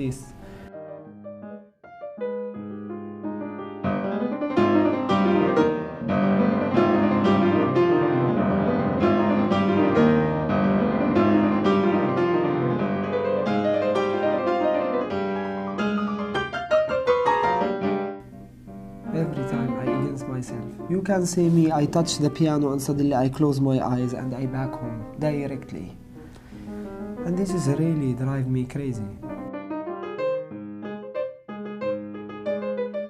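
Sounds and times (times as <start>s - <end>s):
piano playing: 0.0s - 33.0s.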